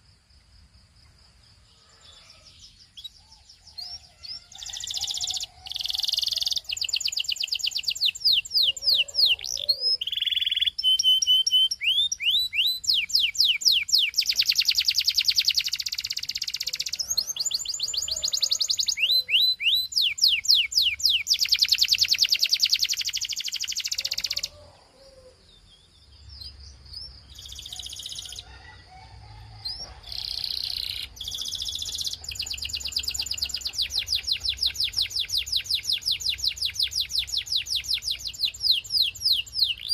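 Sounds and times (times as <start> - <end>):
canary singing trills: 1.7 - 28.8, 29.6 - 39.9.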